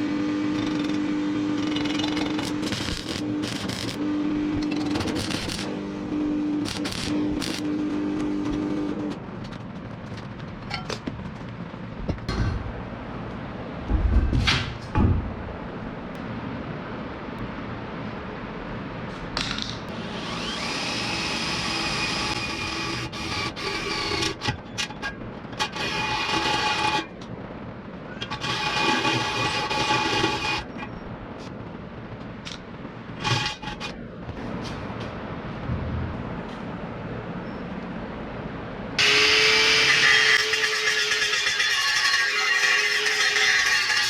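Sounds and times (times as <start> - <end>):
power tool whining: 19.9 - 25.0, 28.2 - 30.7, 39.0 - 44.0.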